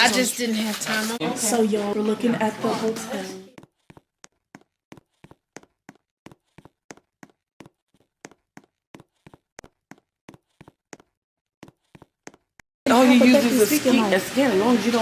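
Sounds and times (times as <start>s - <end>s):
quick clicking footsteps: 3.6s - 12.6s.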